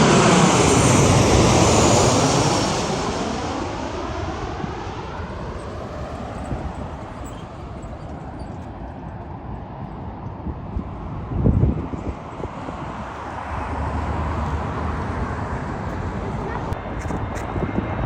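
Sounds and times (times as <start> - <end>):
airplane engines passing: 0.0 - 18.0.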